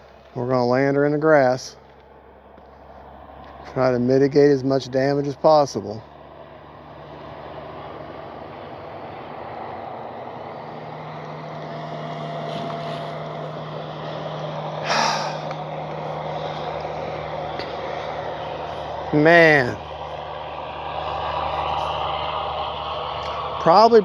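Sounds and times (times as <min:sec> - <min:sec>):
electric motor and propeller humming: 0:00.0 - 0:24.0
loud rush of noise: 0:09.0 - 0:24.0.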